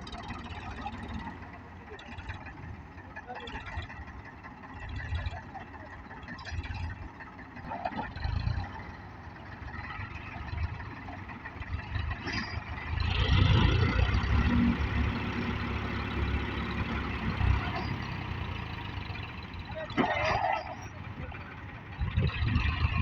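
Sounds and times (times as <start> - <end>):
tractor engines running: 0.0 - 23.0.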